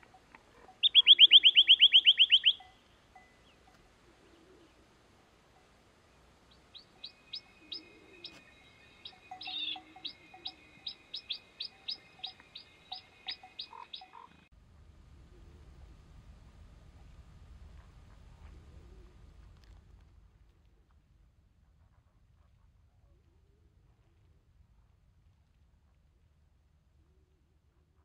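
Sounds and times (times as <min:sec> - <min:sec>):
songbird trilling: 0:00.7 - 0:03.6, 0:06.7 - 0:14.5
songbird upslurred notes: 0:00.8 - 0:03.7, 0:06.8 - 0:14.5.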